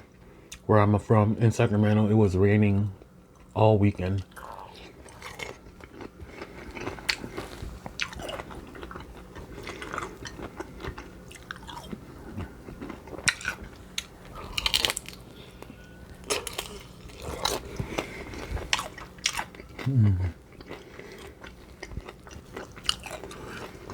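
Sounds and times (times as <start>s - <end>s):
person chewing crunchy food: 4.2s - 23.9s.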